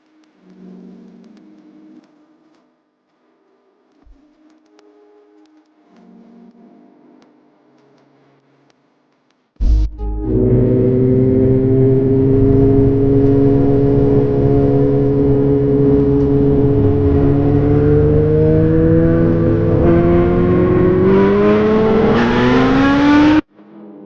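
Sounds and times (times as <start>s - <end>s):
motorcycle engine revving: 9.6s - 23.5s.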